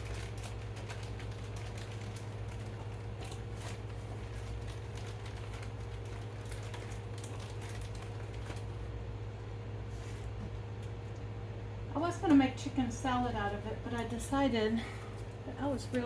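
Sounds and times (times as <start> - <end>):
hands pulling apart frozen meat: 0.0 - 8.9
steady low hum: 0.0 - 16.0.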